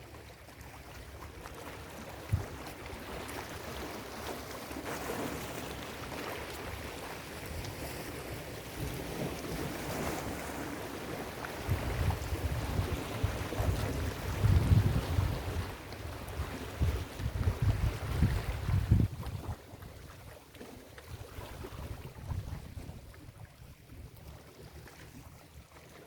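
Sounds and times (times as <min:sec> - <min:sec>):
wind buffeting microphone: 0:11.6 - 0:20.0, 0:21.2 - 0:24.1.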